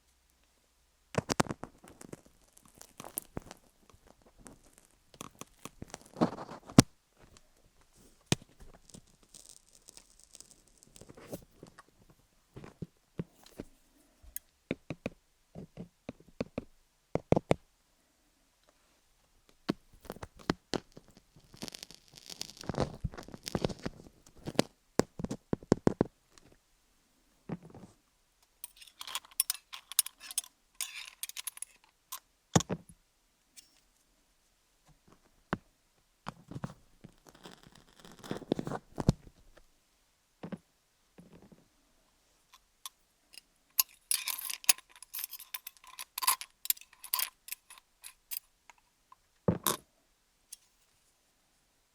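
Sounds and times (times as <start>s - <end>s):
scratchy rubbing: 8.0s - 11.8s, 20.0s - 24.6s, 28.6s - 31.9s, 36.5s - 39.0s.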